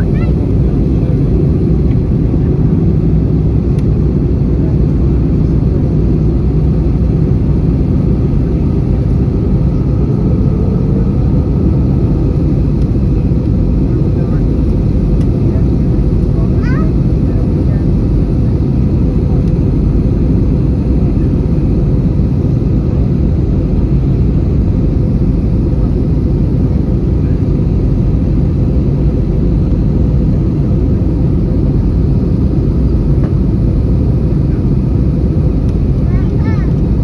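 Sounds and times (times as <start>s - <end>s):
airplane cabin roar: 0.0s - 37.0s.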